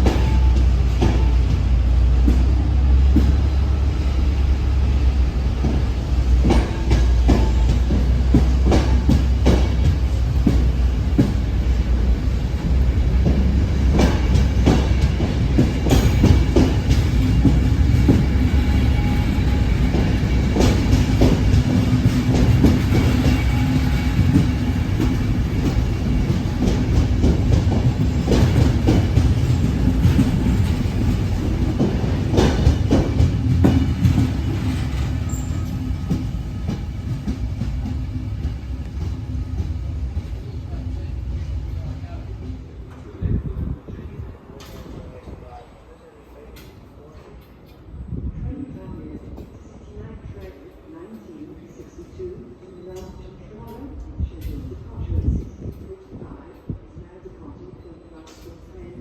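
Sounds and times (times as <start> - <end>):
train wheels clacking on rail joints: 0.0 - 42.0
diesel locomotive rumble: 0.0 - 45.5.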